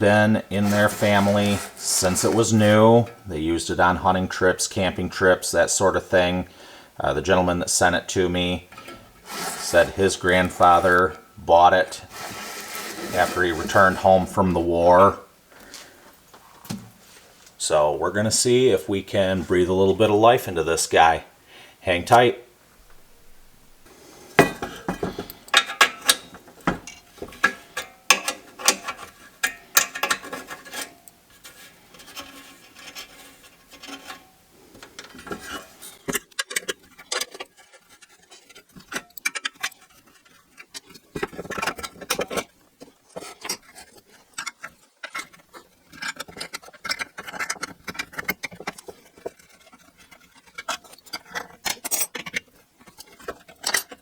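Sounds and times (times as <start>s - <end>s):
metal parts and tools clinking: 0.6s - 3.3s, 8.6s - 11.3s, 24.4s - 42.5s, 43.1s - 54.0s.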